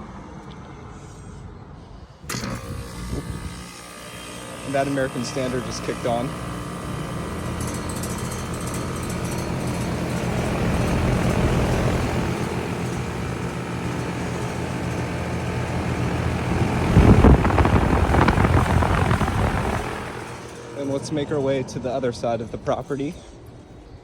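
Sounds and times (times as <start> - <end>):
compressor hum: 2.2 - 24.0
condenser fan rushing: 2.2 - 24.0
loud rushing rumble: 10.3 - 22.6.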